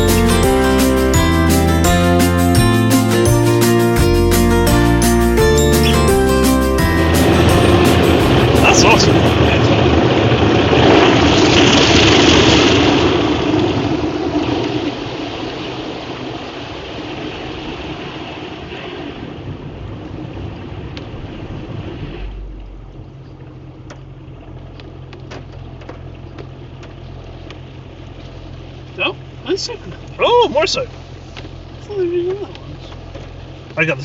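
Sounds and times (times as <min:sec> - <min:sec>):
car wash machinery rushing: 0:06.8 - 0:34.0
low steady hum: 0:19.5 - 0:34.0.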